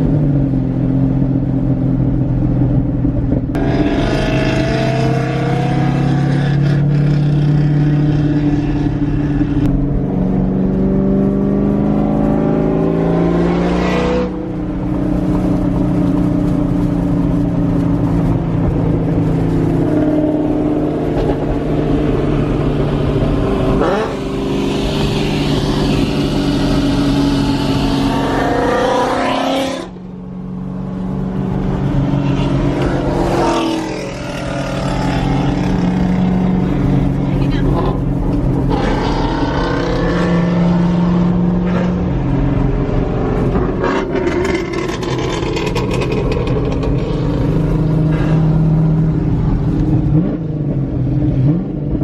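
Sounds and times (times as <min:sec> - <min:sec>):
car engine and exhaust revving: 0:00.0 - 0:52.0.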